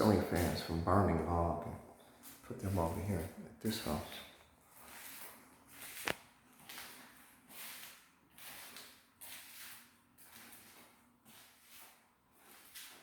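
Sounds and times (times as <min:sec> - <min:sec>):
soft footsteps walking: 0:00.0 - 0:01.3, 0:02.0 - 0:13.0.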